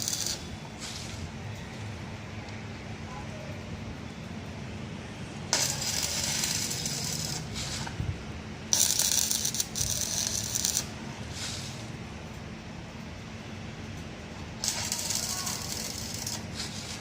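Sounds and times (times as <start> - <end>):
arc welding crackling: 0.0 - 2.2, 5.4 - 17.0
steady low hum: 0.0 - 17.0.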